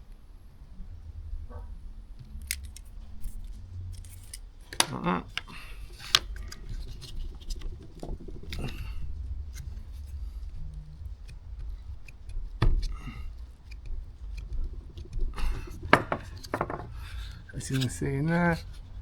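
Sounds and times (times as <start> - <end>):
steady low rumble: 0.0 - 19.0
plastic clicks and clatter: 2.2 - 8.8.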